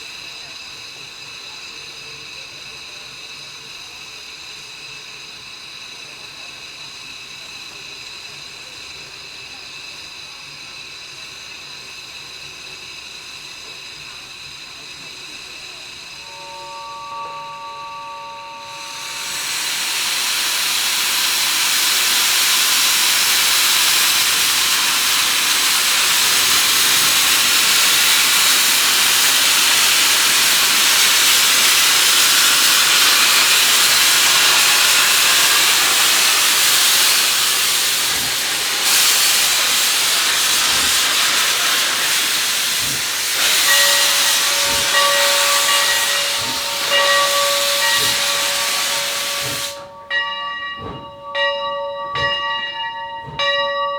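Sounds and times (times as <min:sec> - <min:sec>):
steam locomotive venting steam: 0:00.0 - 0:53.9
locomotive bell ringing: 0:16.2 - 0:53.9.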